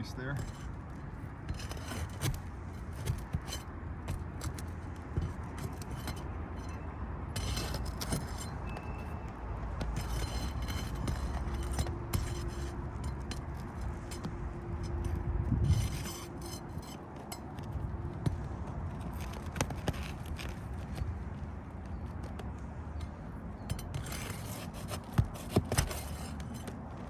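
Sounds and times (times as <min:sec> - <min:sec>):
pry bar scraping under shingles: 0:00.0 - 0:27.0.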